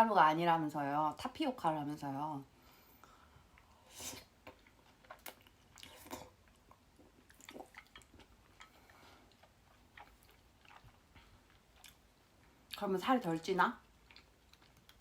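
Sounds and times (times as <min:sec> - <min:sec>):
close-miked chewing: 0:03.4 - 0:15.0
wet mouth clicks: 0:04.1 - 0:08.7.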